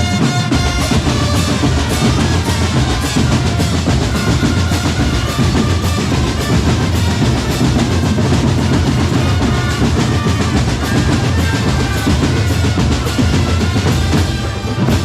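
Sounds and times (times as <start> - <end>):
snare and bass drums: 0.0 - 15.0.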